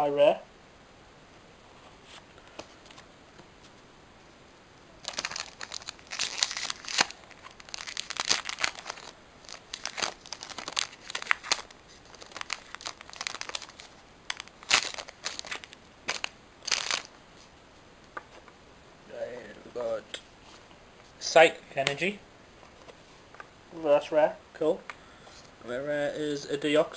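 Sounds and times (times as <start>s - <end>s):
foil wrapper tearing and crinkling: 5.0s - 17.1s.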